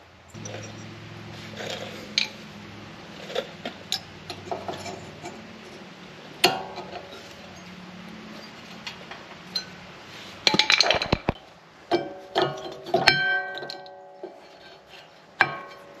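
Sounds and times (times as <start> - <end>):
metallic clinks of tools and parts: 0.3 - 1.0, 6.4 - 9.8
loud ringing metal clank: 6.4 - 7.2.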